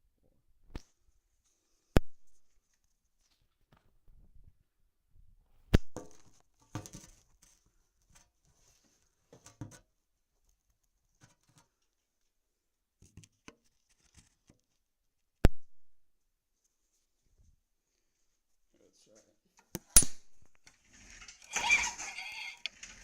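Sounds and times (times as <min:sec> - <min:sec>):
rustling: 0:20.5 - 0:23.0.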